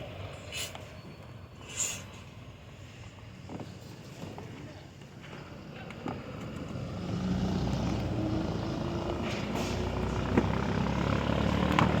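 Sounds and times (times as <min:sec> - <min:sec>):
engine droning: 0:05.3 - 0:12.0.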